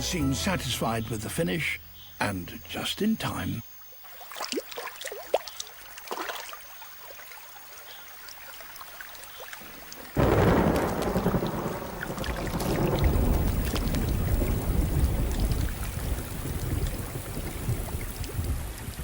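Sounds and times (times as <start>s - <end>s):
faint ticks and chirps: 0.1s - 19.0s
heavy rain: 9.6s - 19.0s
low rumble of thunder: 10.2s - 19.0s.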